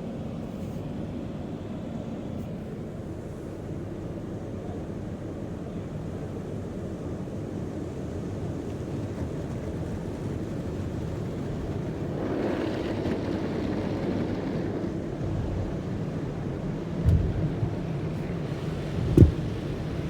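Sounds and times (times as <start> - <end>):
low car wash rumble: 0.0 - 20.0
water rushing: 17.7 - 20.0.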